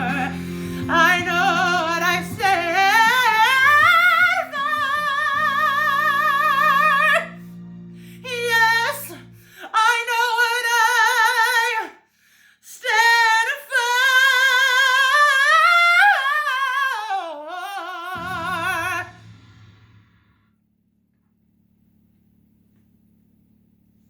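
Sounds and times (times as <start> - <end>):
low backing notes: 0.0 - 9.5.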